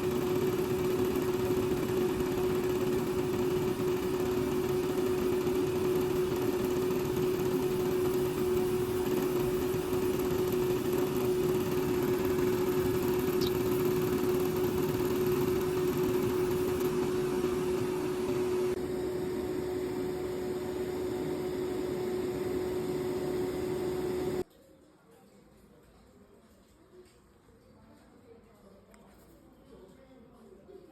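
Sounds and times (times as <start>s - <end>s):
small motor humming: 0.0s - 24.4s.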